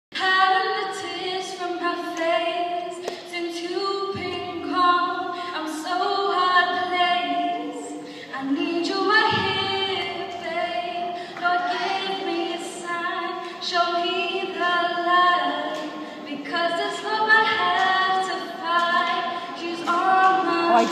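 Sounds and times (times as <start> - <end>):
woman singing a cappella: 0.1 - 20.9.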